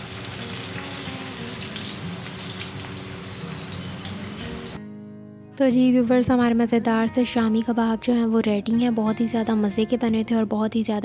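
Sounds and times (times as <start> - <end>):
food sizzling in hot oil: 0.0 - 4.8.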